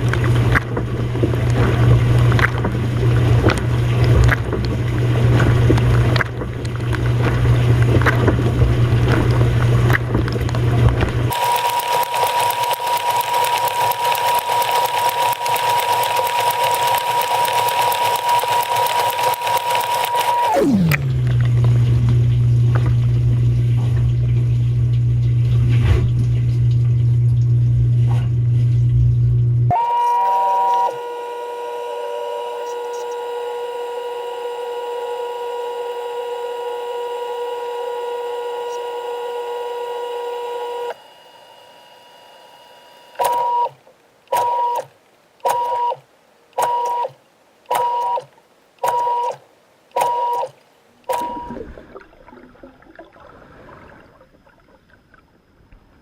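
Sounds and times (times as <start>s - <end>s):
water noise: 0.0s - 11.8s, 18.9s - 29.2s, 48.4s - 56.0s
dishwasher pump humming: 0.0s - 44.9s, 50.0s - 55.2s
short beeps: 51.1s - 51.6s.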